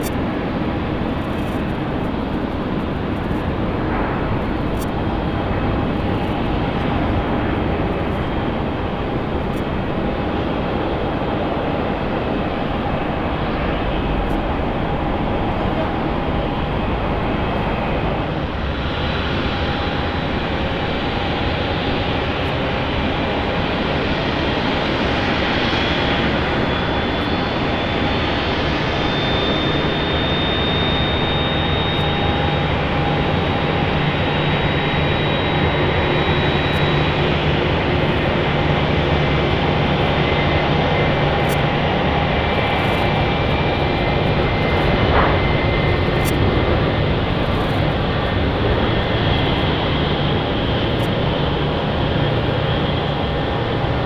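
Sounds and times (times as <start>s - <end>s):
high engine whine: 0.0s - 54.0s
jet engines running: 0.0s - 54.0s.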